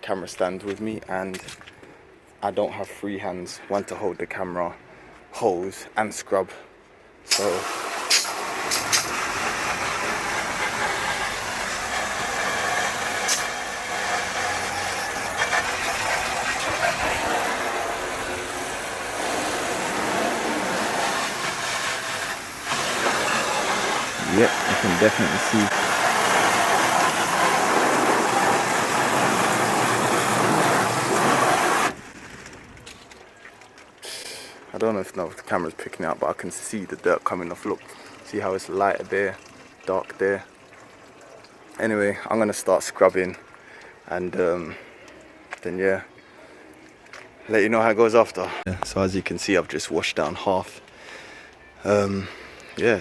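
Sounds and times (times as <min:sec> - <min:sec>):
hose water spraying: 0:07.3 - 0:32.1.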